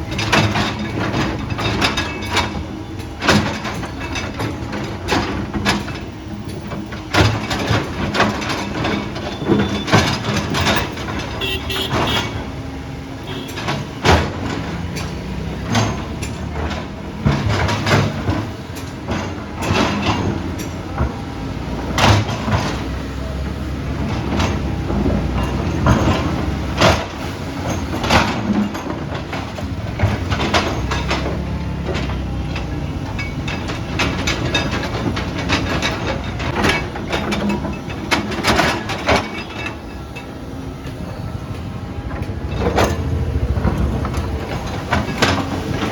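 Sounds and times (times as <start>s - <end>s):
diesel engine under load: 0.0s - 45.9s
metal clanks and knocks: 0.0s - 45.9s.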